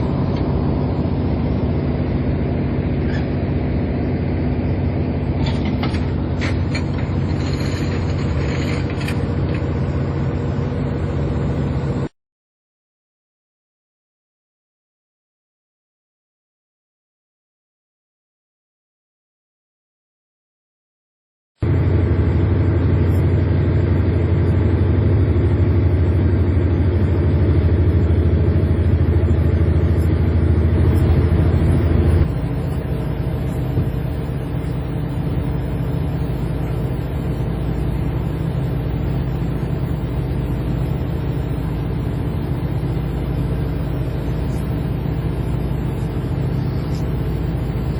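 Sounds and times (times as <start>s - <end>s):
boat diesel engine running: 0.0s - 12.1s, 21.6s - 47.9s.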